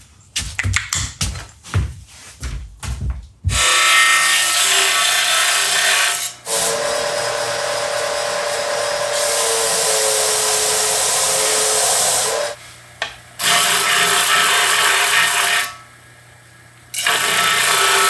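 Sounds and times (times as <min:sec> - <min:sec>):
power tool whirring: 0:03.6 - 0:12.6, 0:16.9 - 0:18.0.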